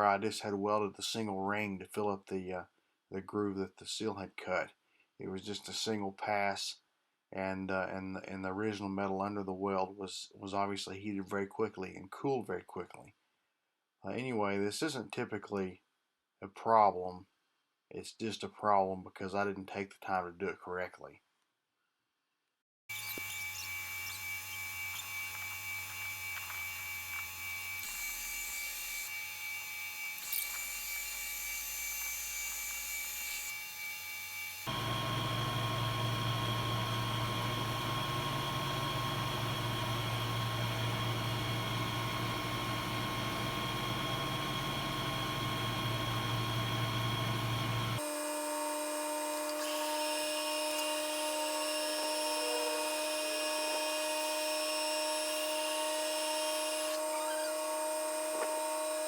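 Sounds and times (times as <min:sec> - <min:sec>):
metal lathe motor humming: 0:34.4 - 0:59.0.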